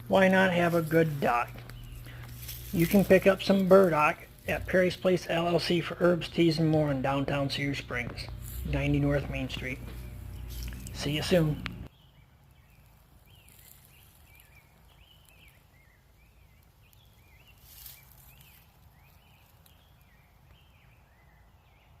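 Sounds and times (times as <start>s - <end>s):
faint birdsong chirps: 0.0s - 22.0s
low steady outdoor rumble: 0.0s - 22.0s.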